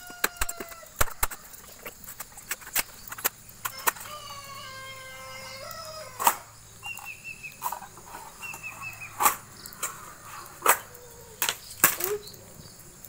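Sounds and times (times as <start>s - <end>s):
rooster crowing: 0.0s - 1.6s, 3.7s - 6.6s
bird chirping: 2.8s - 13.0s.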